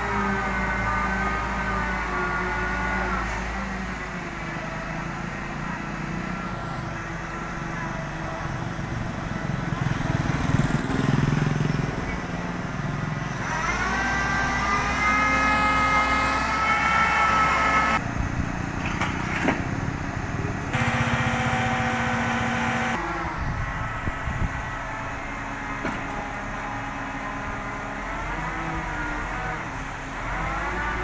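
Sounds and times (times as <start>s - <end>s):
vehicle engine revving: 20.6s - 23.0s.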